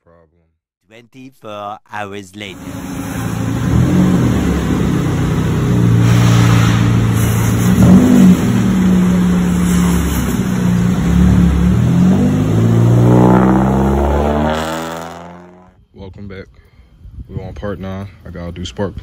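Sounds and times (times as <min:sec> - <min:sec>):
car engine running loudly: 0:02.6 - 0:15.7
engine rev: 0:02.6 - 0:15.7.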